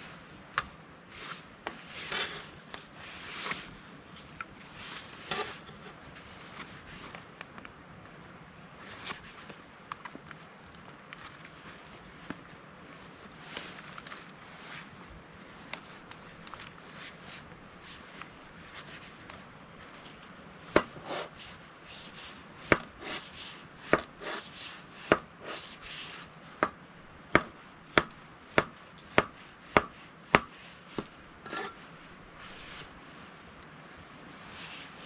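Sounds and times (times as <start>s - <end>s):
soft scraping: 1.1s - 7.2s, 30.0s - 35.0s.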